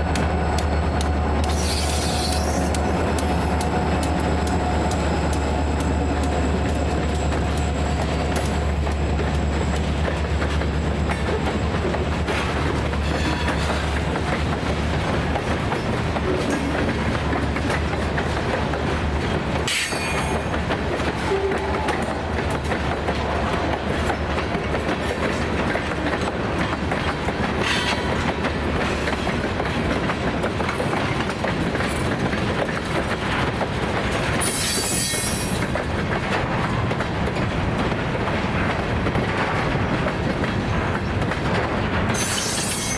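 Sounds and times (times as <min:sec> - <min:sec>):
freight train wheels clicking: 0:00.0 - 0:42.9
high-pitched wheel squeals: 0:34.4 - 0:35.6.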